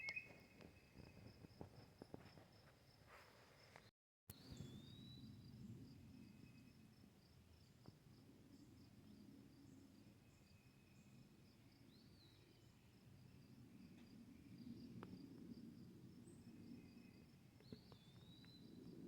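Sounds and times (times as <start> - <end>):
whistled bird calls: 0.0 - 0.9, 4.4 - 5.3
crickets chirping: 0.0 - 19.0.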